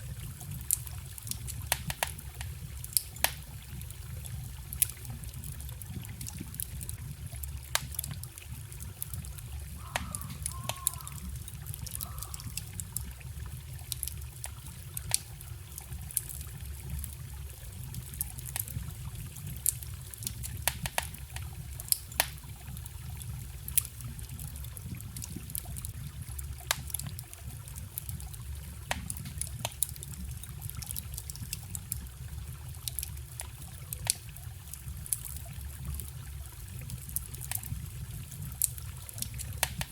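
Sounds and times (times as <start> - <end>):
bonfire crackling and popping: 0.0 - 39.9
forest stream rushing: 9.6 - 12.6.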